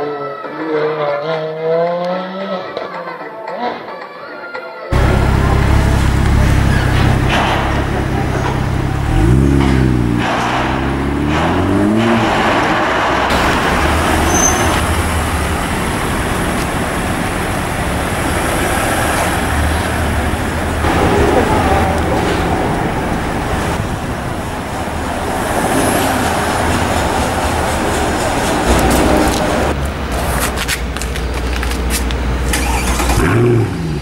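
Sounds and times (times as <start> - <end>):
road noise: 4.9 - 34.0
car engine accelerating: 5.0 - 30.2, 32.2 - 34.0
car engine low hum: 5.0 - 34.0.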